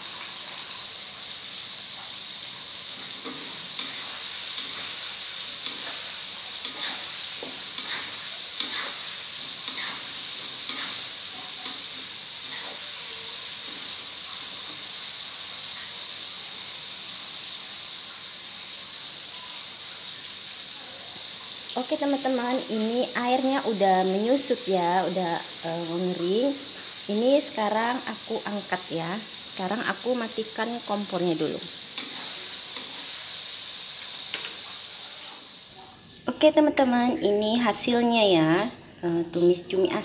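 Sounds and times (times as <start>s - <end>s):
stir-fry sizzling in a wok: 0.0s - 40.0s
wooden spatula scraping a wok: 3.0s - 13.0s, 31.9s - 33.3s, 34.3s - 35.6s.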